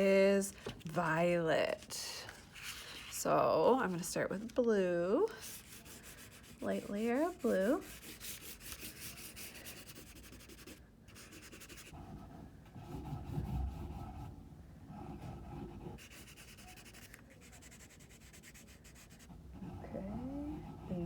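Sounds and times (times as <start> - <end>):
crayon scribbling on paper: 5.4 - 12.0, 15.0 - 21.0.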